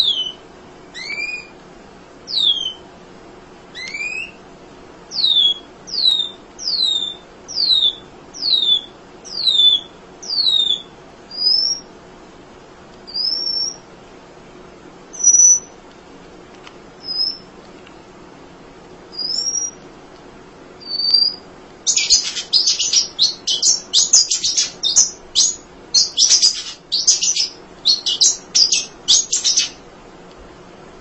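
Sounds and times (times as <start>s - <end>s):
bird whistling high notes: 20.8s - 29.8s
bird chattering: 20.9s - 29.8s.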